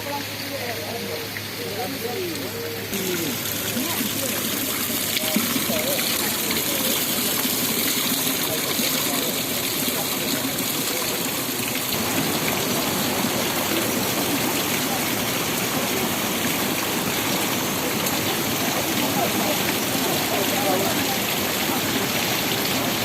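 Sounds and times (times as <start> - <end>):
stream water rushing over falls: 0.0 - 23.0.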